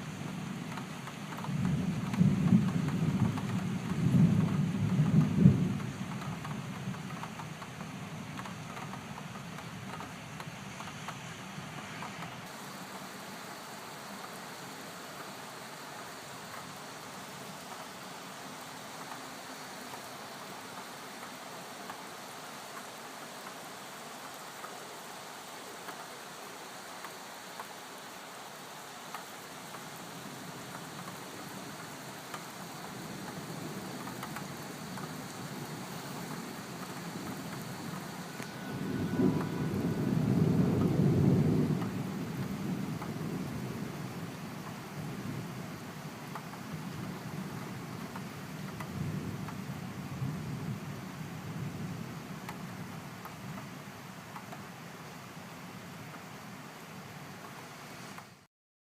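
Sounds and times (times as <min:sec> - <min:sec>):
raindrops ticking: 0:00.0 - 0:12.6, 0:15.1 - 0:38.5, 0:39.2 - 0:50.2, 0:52.3 - 0:54.8
steady rain falling: 0:00.0 - 0:58.5
low rumble of thunder: 0:00.1 - 0:09.3, 0:30.0 - 0:53.3.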